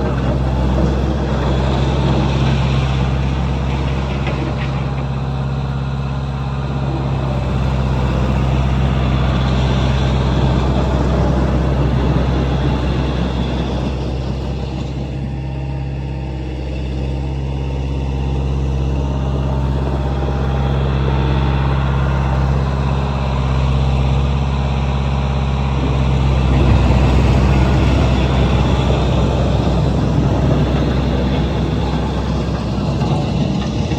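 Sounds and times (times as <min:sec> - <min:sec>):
wheel loader engine running: 0:00.0 - 0:33.9.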